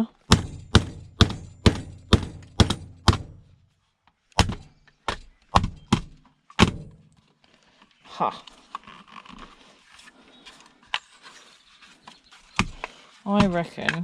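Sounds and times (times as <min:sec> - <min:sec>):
hammer bashing electronics: 0:00.2 - 0:03.6, 0:04.4 - 0:07.0.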